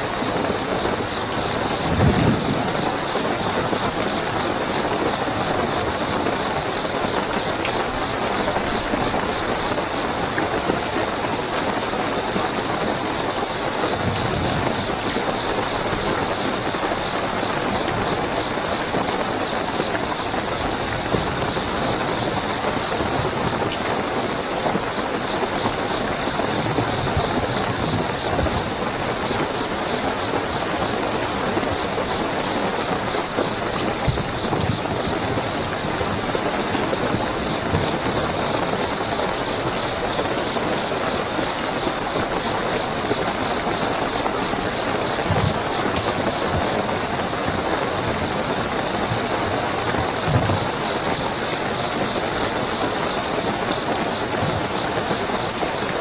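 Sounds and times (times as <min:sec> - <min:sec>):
crickets chirping: 0:00.0 - 0:56.0
heavy rainfall: 0:00.0 - 0:56.0.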